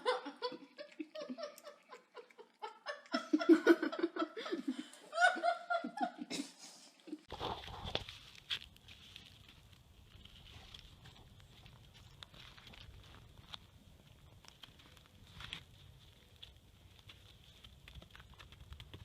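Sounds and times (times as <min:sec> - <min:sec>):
person laughing: 0:00.0 - 0:07.3.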